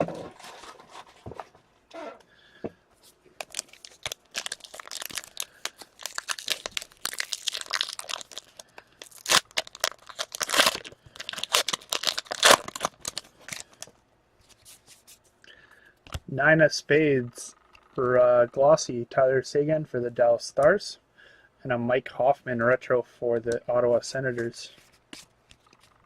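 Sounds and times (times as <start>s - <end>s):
wrapper tearing and crinkling: 3.4s - 13.9s.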